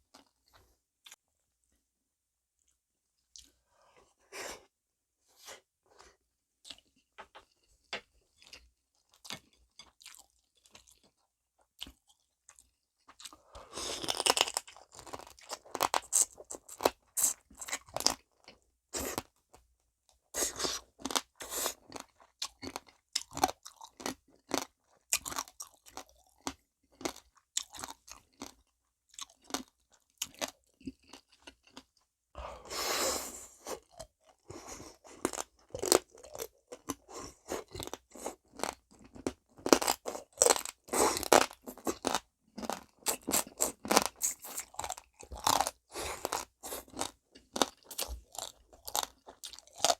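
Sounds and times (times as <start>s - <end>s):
chewing and crunching crab shells: 8.3s - 19.5s, 20.2s - 32.2s, 33.6s - 49.9s.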